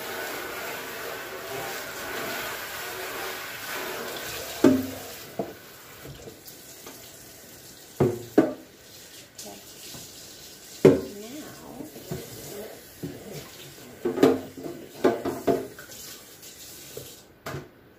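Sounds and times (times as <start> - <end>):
faucet running into sink: 0.0 - 17.3
plastic bins knocking on sink: 4.5 - 6.3, 8.0 - 8.7, 10.8 - 11.1, 14.0 - 15.8.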